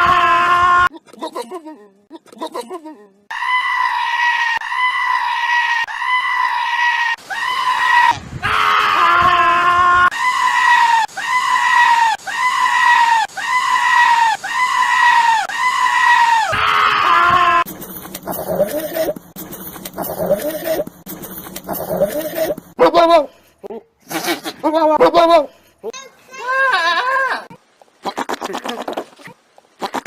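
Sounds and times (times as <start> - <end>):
goat screaming: 3.3 - 17.7, 26.4 - 29.2.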